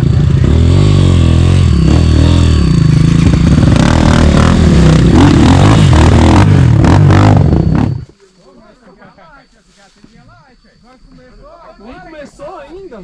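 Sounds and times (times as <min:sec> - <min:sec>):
motorcycle engine revving: 0:00.0 - 0:08.1.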